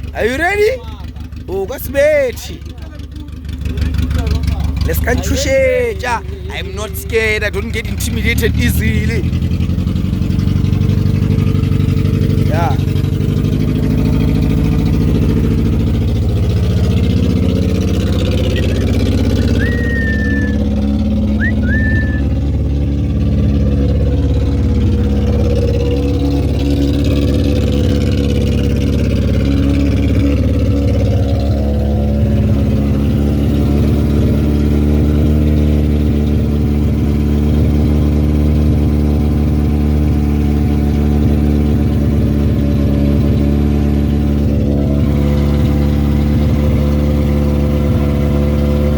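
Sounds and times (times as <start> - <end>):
car engine running: 0.0 - 48.9.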